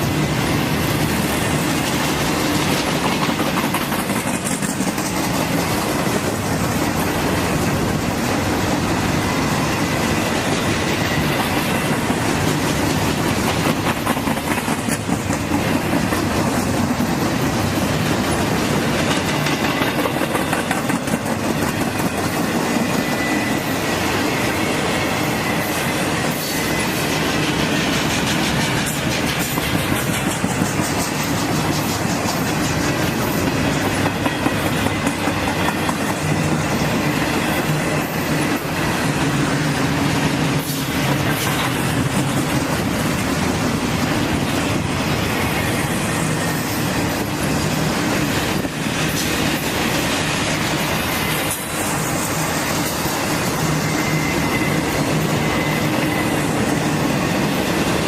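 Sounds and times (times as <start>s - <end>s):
rail clicks: 0.0s - 58.0s
train wheels rumbling on track: 0.0s - 58.0s
faint wheel squeal: 53.6s - 57.0s.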